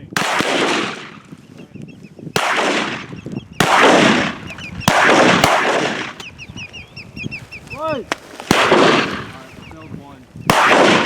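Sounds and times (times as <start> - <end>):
shotgun shots echoing: 0.1 - 1.3, 2.4 - 6.2, 8.1 - 9.5, 10.5 - 11.0.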